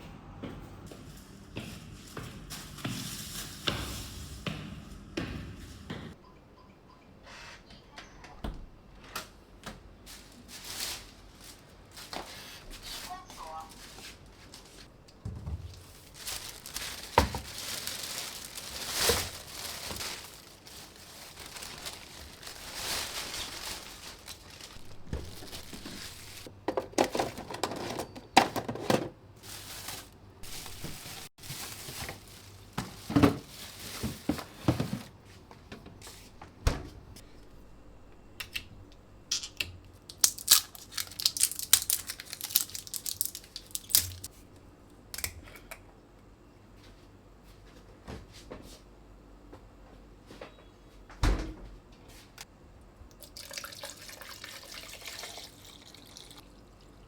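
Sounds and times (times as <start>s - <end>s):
crinkling and rustling: 9.2s - 36.5s, 40.1s - 44.3s.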